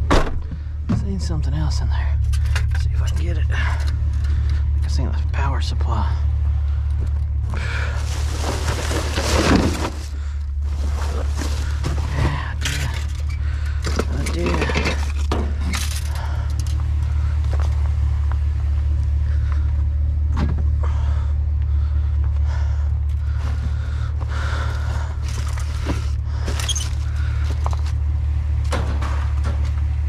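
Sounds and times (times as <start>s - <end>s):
low drone: 0.0s - 30.0s
scrap clanking in metal dumpster: 8.0s - 10.1s.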